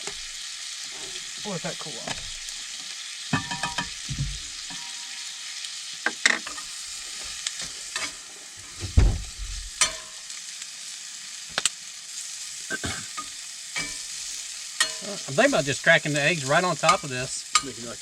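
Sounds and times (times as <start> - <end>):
food sizzling in a pan: 0.0 - 18.0
dull thump: 8.8 - 9.6.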